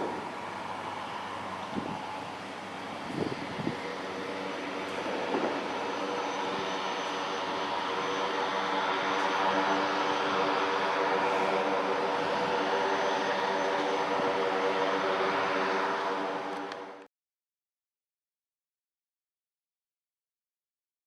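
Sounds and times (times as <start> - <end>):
turboprop aircraft propeller drone: 0.0 - 17.1.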